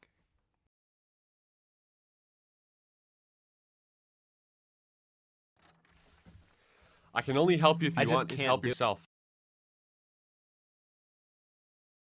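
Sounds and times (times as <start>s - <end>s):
person speaking: 7.2s - 9.0s.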